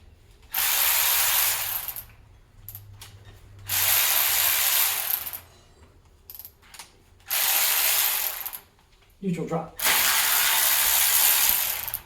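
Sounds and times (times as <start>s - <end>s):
power ratchet running: 0.5s - 2.1s, 3.7s - 5.4s, 7.3s - 8.6s, 9.8s - 12.0s.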